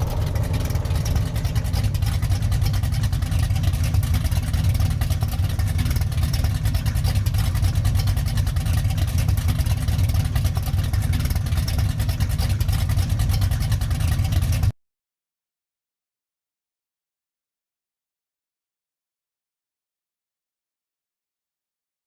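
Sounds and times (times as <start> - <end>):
car engine rumbling idle: 0.0 - 14.7.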